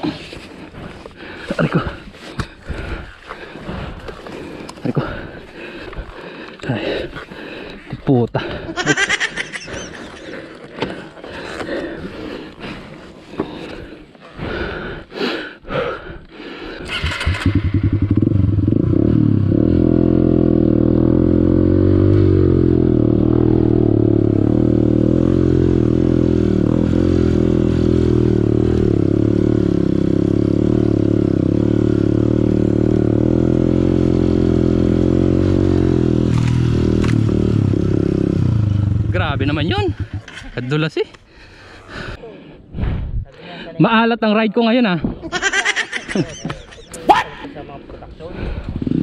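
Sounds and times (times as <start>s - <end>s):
motorcycle engine running at low revs: 16.9s - 40.5s, 48.6s - 49.0s.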